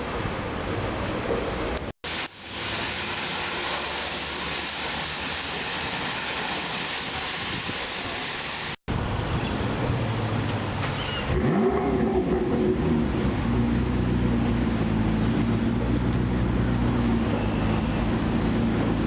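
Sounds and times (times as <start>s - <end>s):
car wash equipment hissing: 2.0s - 8.8s
faint low engine hum: 9.2s - 19.0s.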